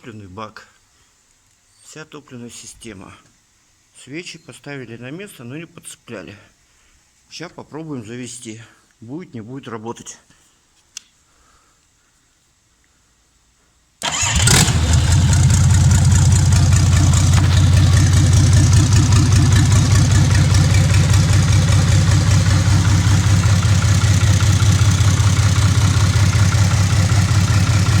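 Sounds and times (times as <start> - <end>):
diesel engine starting and idling: 14.0 - 28.0.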